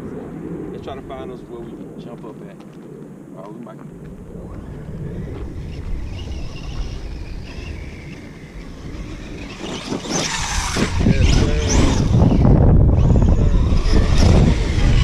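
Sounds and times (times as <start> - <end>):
electric motor whining: 4.4 - 15.0.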